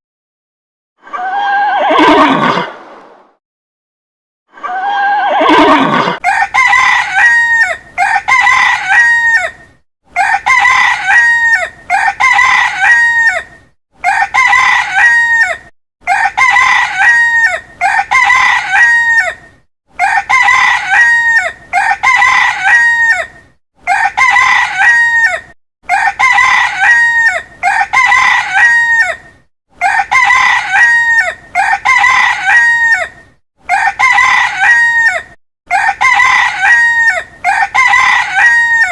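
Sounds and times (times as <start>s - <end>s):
rooster crowing: 4.6s - 9.6s, 10.2s - 13.4s, 14.0s - 19.4s, 20.0s - 23.3s, 23.9s - 29.2s, 29.8s - 33.1s, 33.7s - 38.9s.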